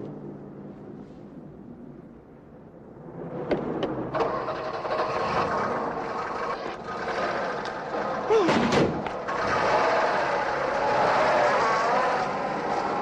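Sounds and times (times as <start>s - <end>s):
car engine revving: 9.2s - 13.0s.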